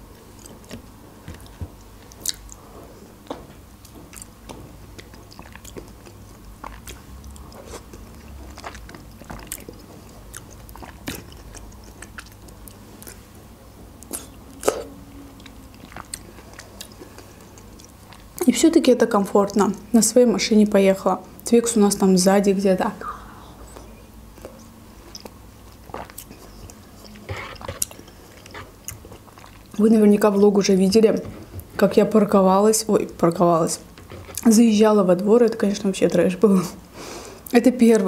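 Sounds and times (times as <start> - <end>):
person chewing: 0.2 - 2.8, 3.8 - 13.4, 14.0 - 18.4, 23.7 - 29.8
mouth smacks: 14.0 - 18.3.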